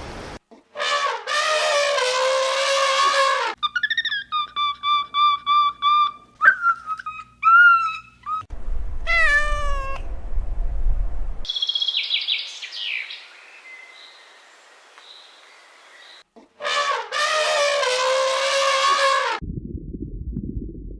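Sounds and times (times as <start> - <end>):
longer falling animal call: 1.4 - 10.0
low rumble: 8.5 - 11.5, 19.4 - 20.9.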